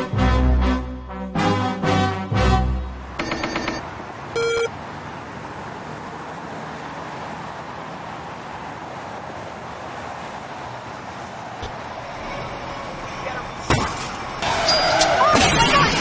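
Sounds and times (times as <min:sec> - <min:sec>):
road and traffic noise: 0:00.0 - 0:16.0
short electronic beep: 0:04.4 - 0:04.7.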